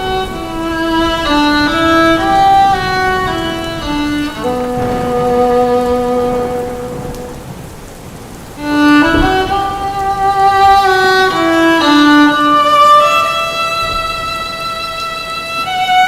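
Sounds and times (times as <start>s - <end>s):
faint rain hiss: 0.0s - 16.0s
violin playing slow melody: 8.6s - 16.0s.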